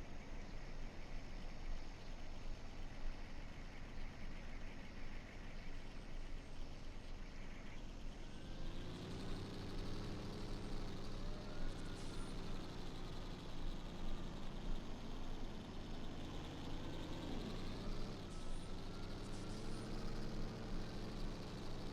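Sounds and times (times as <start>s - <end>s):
truck driving by: 8.3s - 21.9s.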